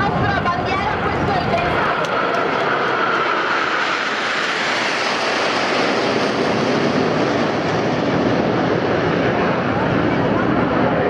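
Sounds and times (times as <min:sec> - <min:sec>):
jet aircraft flying past: 0:00.0 - 0:11.0.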